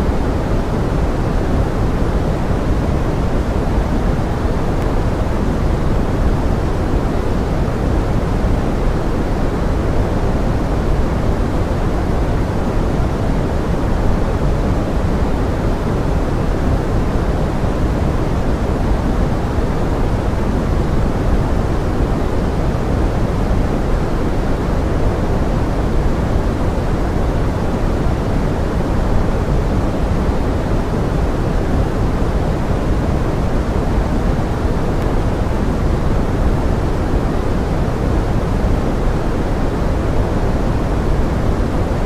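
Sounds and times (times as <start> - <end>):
pink noise: 0.0 - 42.0.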